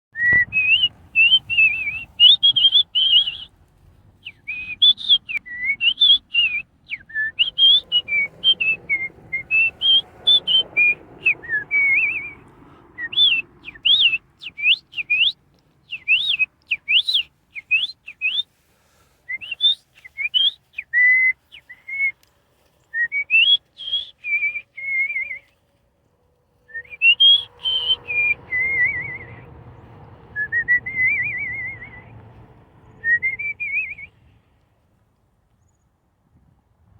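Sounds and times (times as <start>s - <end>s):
bird whistling: 0.2s - 3.5s, 4.2s - 12.4s, 13.0s - 18.5s, 19.3s - 22.2s, 23.0s - 25.5s, 26.7s - 29.5s, 30.3s - 32.1s, 32.9s - 34.2s.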